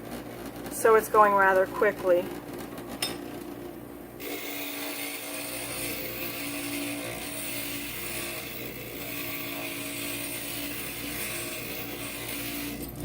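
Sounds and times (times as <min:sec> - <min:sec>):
glass grinder grinding: 0:04.2 - 0:13.0.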